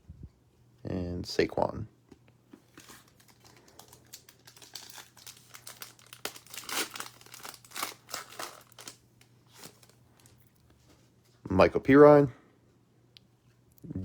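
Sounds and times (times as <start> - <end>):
foil wrapper crinkling and tearing: 2.6 - 10.3.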